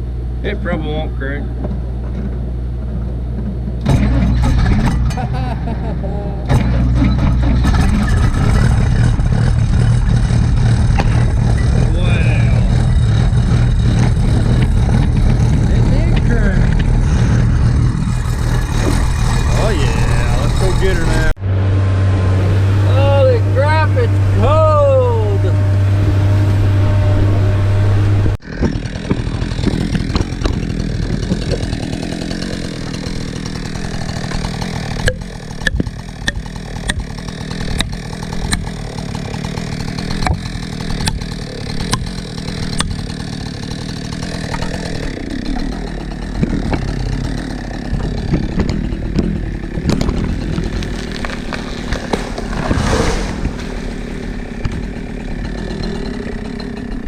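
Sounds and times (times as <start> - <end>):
chainsaw engine running: 3.8 - 21.4, 22.8 - 57.0
sharp knocks: 28.6 - 31.9, 35.0 - 38.8, 40.1 - 43.0.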